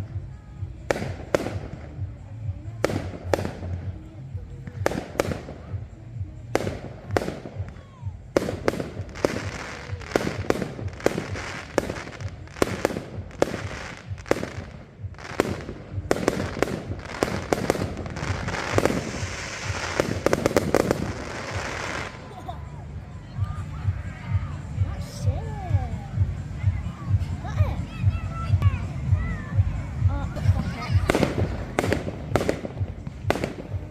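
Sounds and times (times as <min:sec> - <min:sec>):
fireworks crackling: 0:00.0 - 0:22.7, 0:29.5 - 0:33.9
fireworks bangs: 0:00.9 - 0:02.0, 0:06.5 - 0:22.3, 0:31.0 - 0:33.9.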